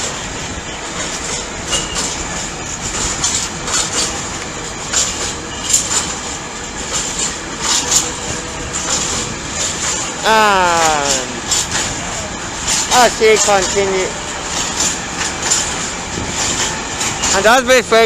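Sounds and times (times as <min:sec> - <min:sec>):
train wheels clattering over rail joints: 0:00.0 - 0:18.0
high wheel squeals: 0:01.6 - 0:02.3, 0:04.9 - 0:06.2, 0:16.6 - 0:17.5.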